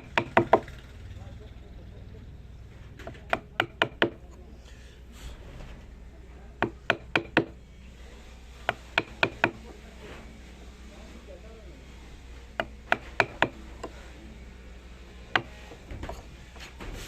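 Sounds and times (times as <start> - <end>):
tool knocking on wood: 0.0 - 0.7, 3.0 - 4.2, 6.6 - 7.6, 8.6 - 9.6, 12.6 - 14.0, 15.3 - 16.2.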